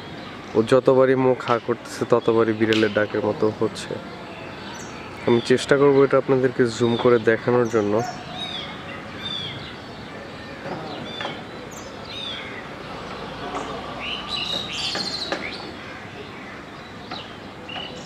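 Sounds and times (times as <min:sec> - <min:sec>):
birds chirping: 0:00.0 - 0:18.0
bird mewing calls: 0:03.7 - 0:18.0.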